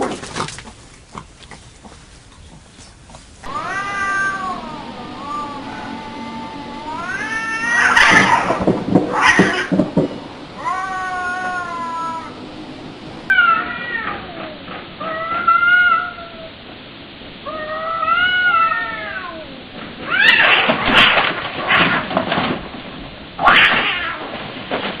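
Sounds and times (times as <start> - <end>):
cats hissing and spitting: 0.0 - 9.8
cats yowling: 3.4 - 9.9, 10.5 - 12.4, 13.3 - 16.6, 17.4 - 20.7, 23.4 - 24.3.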